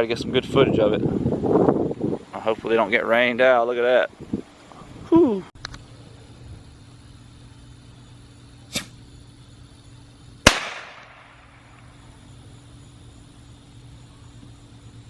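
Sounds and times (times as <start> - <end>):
firework bangs echoing: 10.4 - 11.9.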